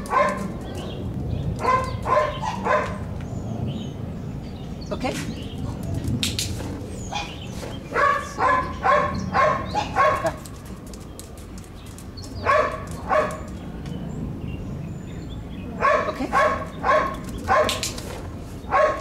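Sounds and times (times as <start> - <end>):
dog barking: 0.0 - 0.6, 1.6 - 3.1, 7.1 - 10.4, 12.4 - 13.5, 15.8 - 17.9, 18.7 - 19.0.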